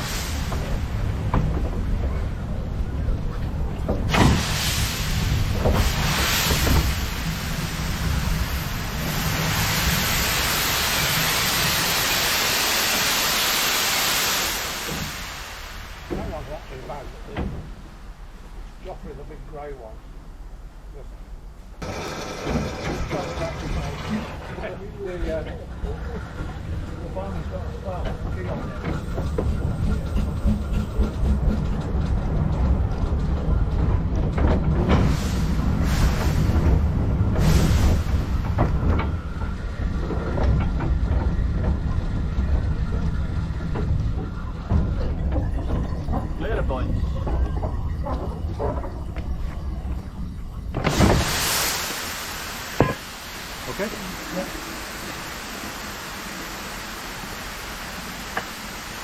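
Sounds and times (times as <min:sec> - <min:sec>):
steam hissing loudly: 0:00.0 - 0:01.5, 0:04.0 - 0:17.3, 0:21.8 - 0:31.2, 0:34.8 - 0:40.5, 0:50.7 - 0:59.0
rushing noise: 0:00.0 - 0:17.3, 0:33.5 - 0:59.0
train wheels rumbling on track: 0:00.0 - 0:59.0
low rumble: 0:29.5 - 0:54.5.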